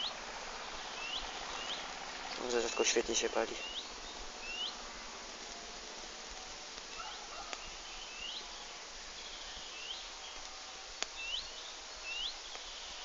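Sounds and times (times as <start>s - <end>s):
small bird chirping: 0.0s - 4.8s, 6.9s - 10.5s, 11.2s - 13.0s
woodland background hiss: 0.0s - 13.0s.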